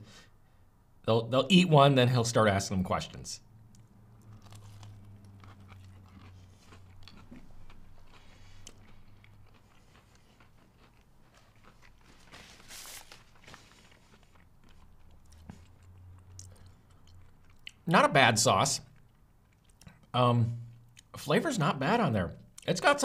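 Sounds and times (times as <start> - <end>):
man crunching and chewing: 3.7 - 17.8.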